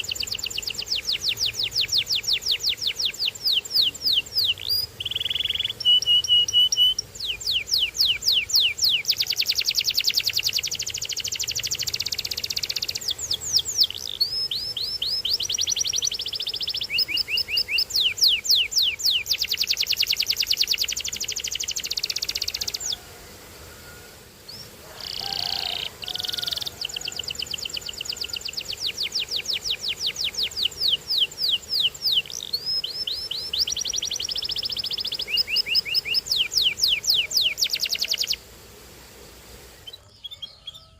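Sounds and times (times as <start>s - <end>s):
canary singing trills: 0.0s - 23.0s, 23.7s - 38.4s, 39.7s - 40.9s.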